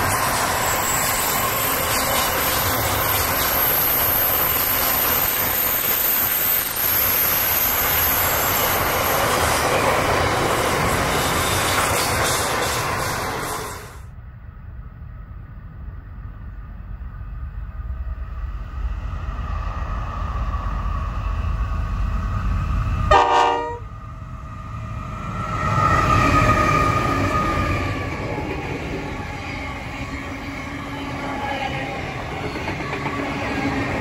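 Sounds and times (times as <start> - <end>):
wagons rolling on rails: 0.0 - 13.7
diesel train rumbling: 0.0 - 34.0
train horn blast: 23.1 - 23.9.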